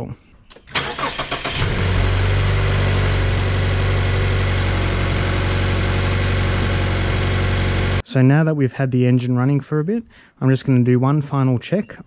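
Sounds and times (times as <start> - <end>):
car engine idling: 0.8 - 8.0.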